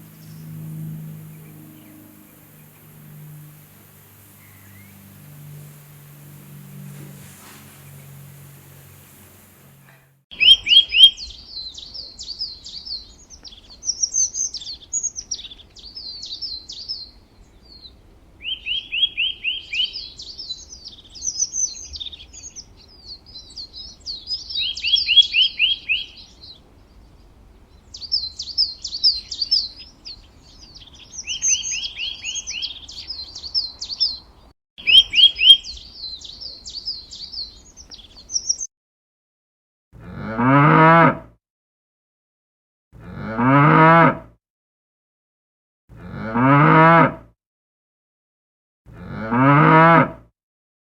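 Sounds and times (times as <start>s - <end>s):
songbird singing: 0.0s - 38.7s.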